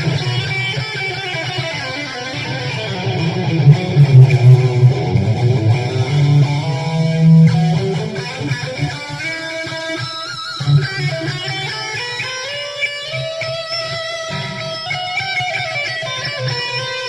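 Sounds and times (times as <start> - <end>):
guitar strummed and plucked: 0.0 - 17.0.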